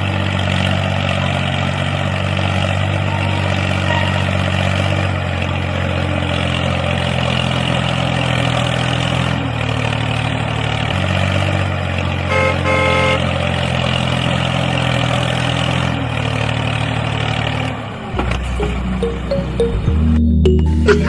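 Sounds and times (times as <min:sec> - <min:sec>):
vehicle engine running: 0:00.0 - 0:21.0
short horn toots: 0:03.1 - 0:04.4.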